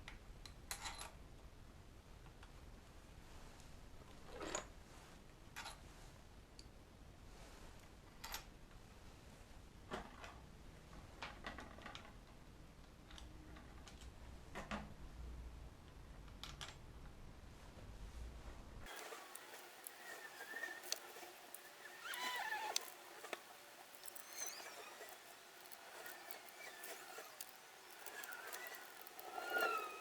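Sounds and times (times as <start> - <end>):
small hard objects clicking: 18.9 - 30.0.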